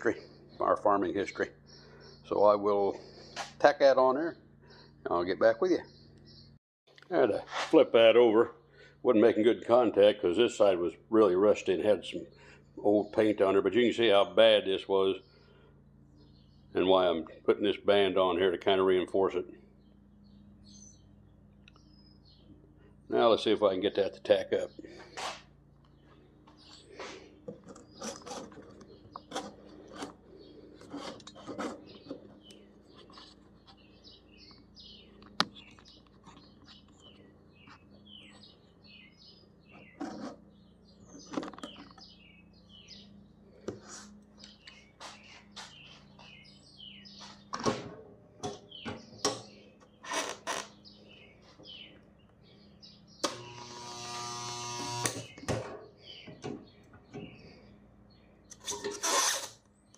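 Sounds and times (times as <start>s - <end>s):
birds chirping: 0.0s - 59.9s
welder buzzing: 53.2s - 55.3s.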